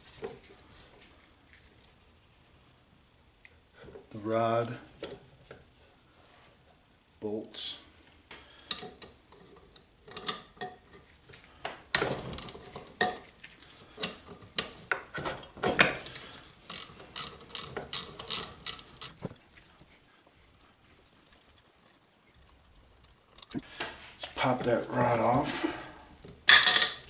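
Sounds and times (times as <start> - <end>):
ratchet wrench clicking: 16.0 - 19.2.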